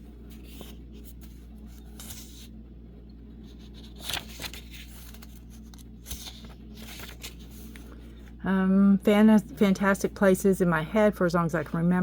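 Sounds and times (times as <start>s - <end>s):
paper pages rustling: 0.0s - 2.6s, 3.3s - 8.4s
low hum: 0.0s - 12.0s.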